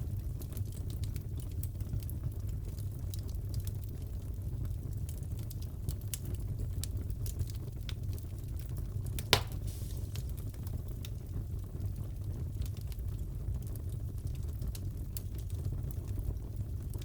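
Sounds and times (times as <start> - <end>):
wood fire crackling: 0.0 - 17.0
loud pop of fire: 9.2 - 11.1.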